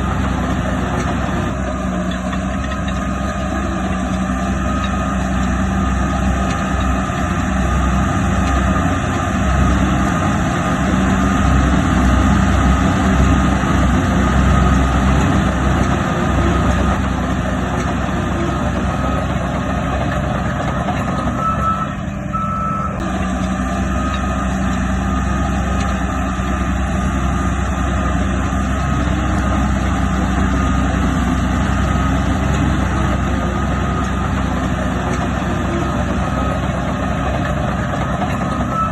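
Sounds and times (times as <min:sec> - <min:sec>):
diesel engine running: 0:00.0 - 0:38.9
reversing alarm beeping: 0:20.7 - 0:23.0, 0:37.9 - 0:38.9.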